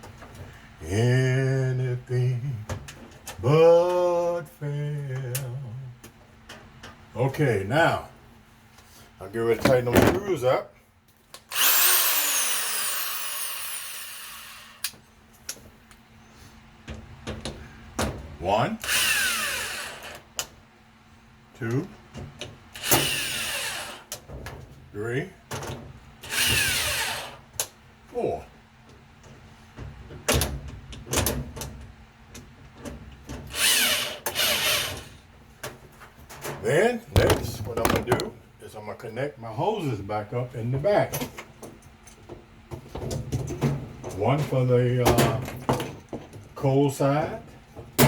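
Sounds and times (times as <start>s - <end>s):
power drill whine: 11.5s - 14.9s, 18.8s - 20.2s, 22.8s - 24.1s, 26.3s - 27.4s, 33.5s - 35.1s.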